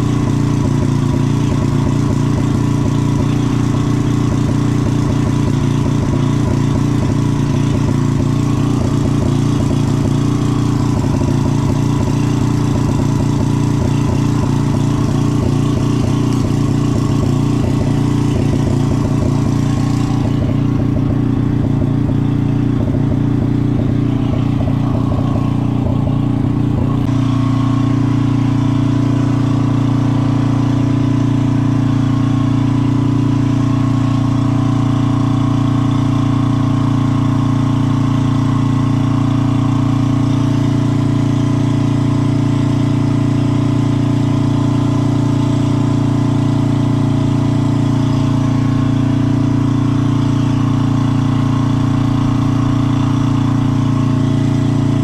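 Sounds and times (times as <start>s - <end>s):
small engine idling: 0.0s - 55.0s.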